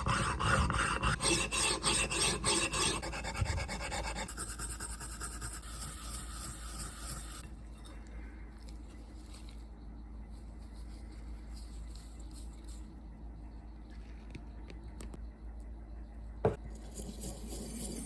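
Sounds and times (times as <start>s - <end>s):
scratchy rubbing on metal: 0.0s - 7.5s, 16.8s - 18.0s
faint low hum: 0.0s - 18.0s.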